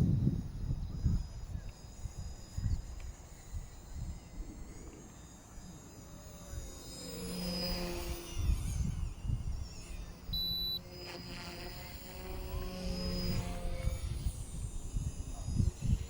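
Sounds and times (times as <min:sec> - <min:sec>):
wind buffeting microphone: 0:00.0 - 0:04.8, 0:08.0 - 0:10.4, 0:12.1 - 0:16.0
rc helicopter motors whining: 0:00.0 - 0:16.0
high electronic beep: 0:10.3 - 0:10.8.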